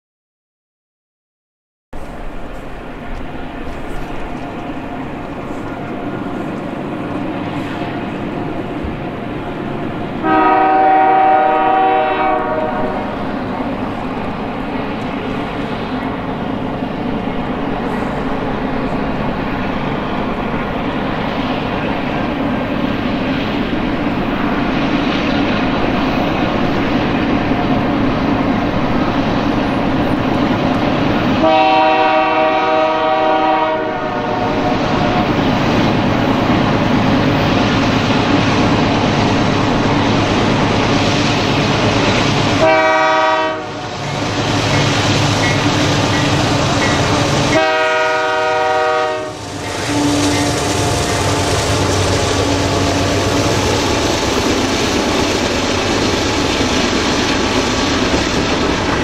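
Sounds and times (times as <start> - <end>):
train engines and wheels rumbling: 2.0 - 59.0
train air horn: 10.2 - 13.2, 31.4 - 34.8, 42.6 - 44.0, 47.1 - 50.8.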